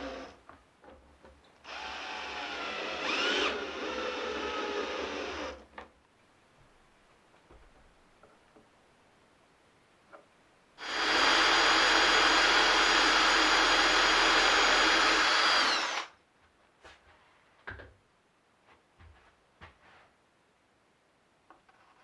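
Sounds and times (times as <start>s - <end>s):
electric drill whining: 1.7s - 5.6s, 10.8s - 16.2s.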